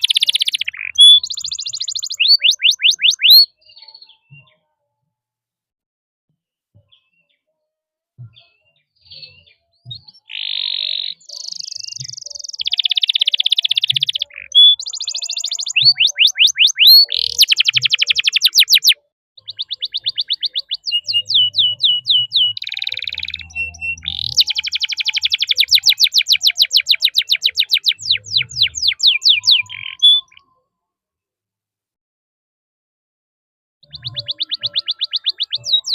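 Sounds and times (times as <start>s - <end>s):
canary singing: 0.0s - 4.3s, 9.1s - 30.5s, 33.8s - 35.9s.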